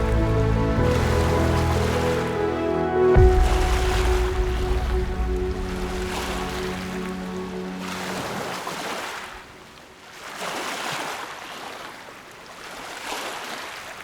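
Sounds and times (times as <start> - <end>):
background music: 0.0 - 9.0
water rushing alongside boat: 0.0 - 14.0.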